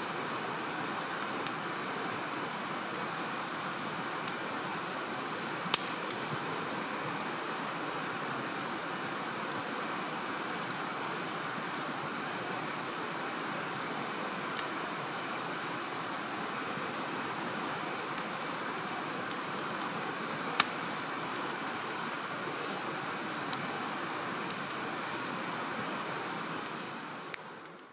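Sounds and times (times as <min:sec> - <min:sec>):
steady fire hiss: 0:00.0 - 0:27.9
wood fire crackling and popping: 0:00.4 - 0:27.9.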